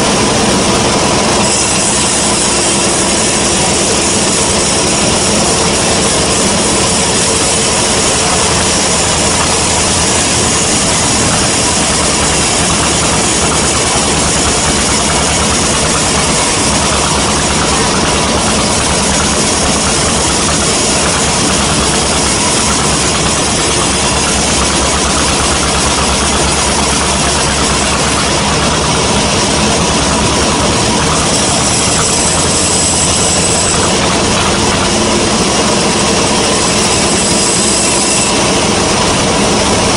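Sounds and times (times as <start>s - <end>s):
band saw sawing log: 0.0s - 39.9s.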